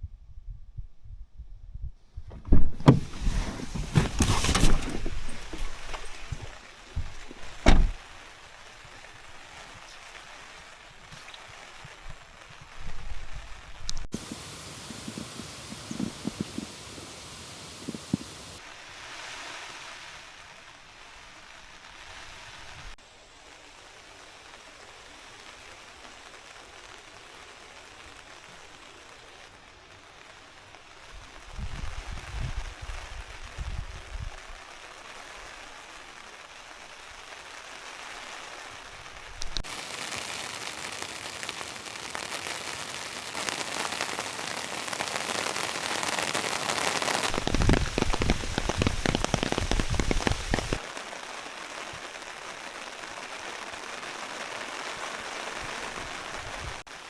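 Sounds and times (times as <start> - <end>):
short low thuds: 1.7 - 8.0
sharp knocks and thumps: 2.3 - 8.0
heavy rain hissing: 2.8 - 29.4, 30.4 - 57.0.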